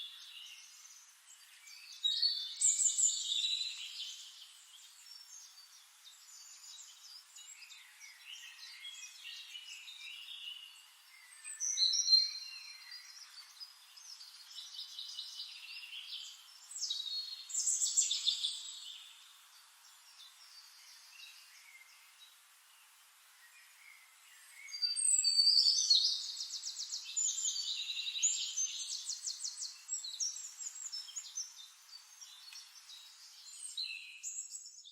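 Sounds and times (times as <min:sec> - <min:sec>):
songbirds singing and trilling: 0:00.0 - 0:34.9.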